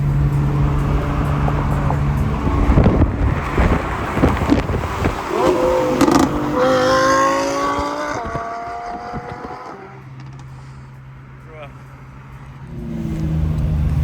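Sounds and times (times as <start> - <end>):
car engine revving accelerating: 0.0 - 10.4, 12.1 - 14.0.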